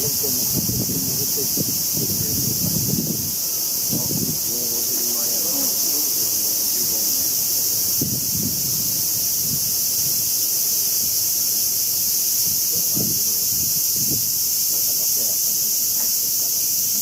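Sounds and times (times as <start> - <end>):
people talking: 0.0 - 2.9, 3.9 - 7.3, 12.7 - 13.2, 14.7 - 16.6
insects chorus: 0.0 - 17.0.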